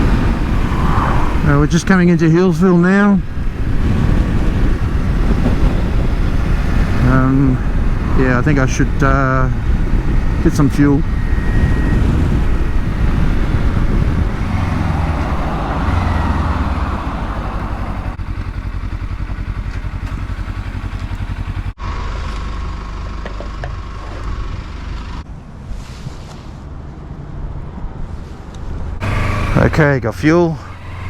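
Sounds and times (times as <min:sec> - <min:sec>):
steady high whine: 0:00.0 - 0:18.2
wind noise: 0:00.0 - 0:21.7
motorcycle engine running: 0:03.2 - 0:25.0, 0:29.0 - 0:30.0, 0:30.6 - 0:31.0.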